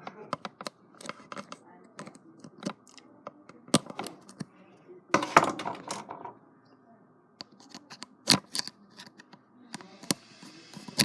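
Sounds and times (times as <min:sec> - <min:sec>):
handling noise: 0:05.2 - 0:06.4.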